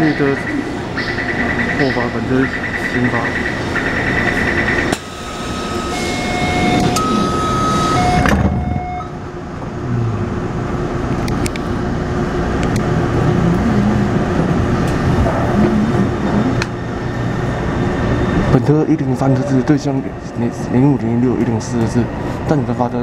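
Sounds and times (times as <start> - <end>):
train pulling away: 0.0 - 23.0
traction motors wavering note: 4.9 - 9.2
door warning chime: 5.0 - 9.2
train doors closing thump: 6.0 - 9.1.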